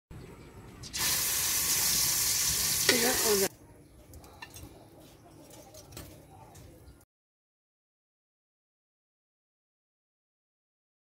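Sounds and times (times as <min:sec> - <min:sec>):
hot oil sizzling in a wok: 0:00.8 - 0:03.5.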